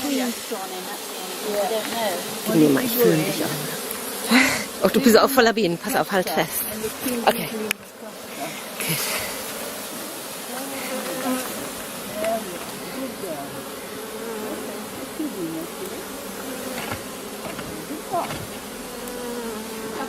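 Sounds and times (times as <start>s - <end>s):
honeybee swarm buzzing: 0.0s - 20.0s.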